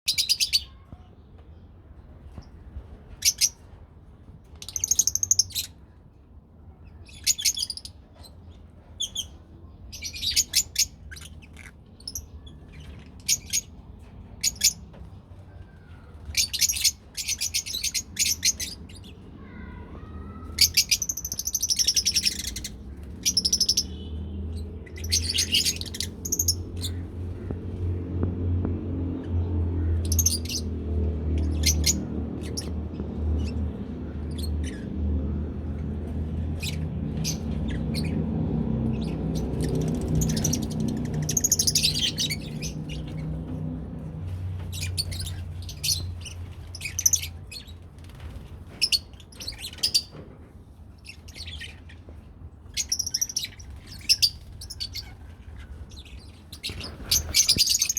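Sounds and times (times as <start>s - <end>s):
lovebirds chirping: 14.4s - 27.7s, 29.2s - 43.6s, 44.2s - 50.2s, 52.7s - 57.9s.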